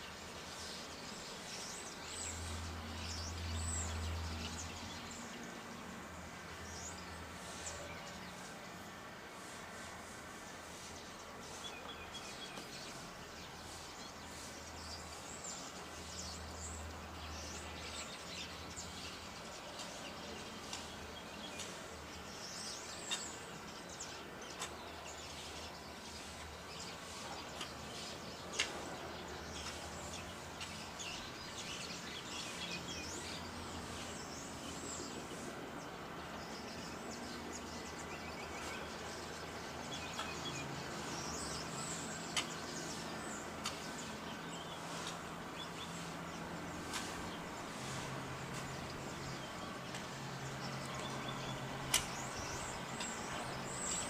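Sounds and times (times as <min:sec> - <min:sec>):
birds chirping: 0:00.0 - 0:54.0
sharp clicks: 0:51.9 - 0:52.2.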